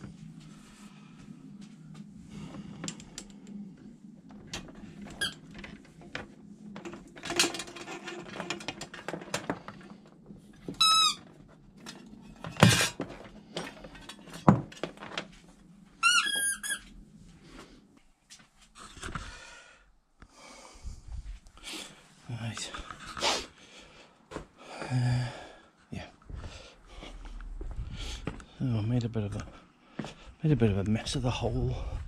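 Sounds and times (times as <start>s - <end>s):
clicks and clatter: 5.5s - 10.2s.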